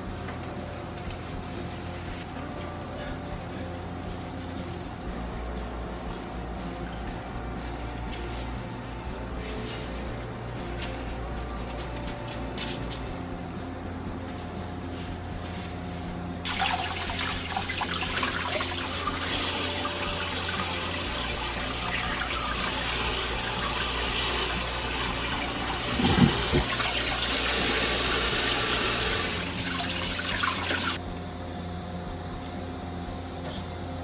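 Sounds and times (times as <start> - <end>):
tap water running into sink: 16.5 - 31.0.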